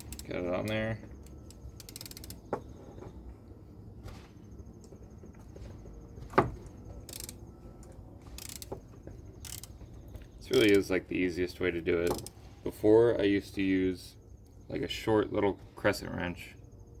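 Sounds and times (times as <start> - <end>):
ratchet clicks and knocks: 0.0 - 2.7, 7.0 - 10.9, 12.0 - 12.4.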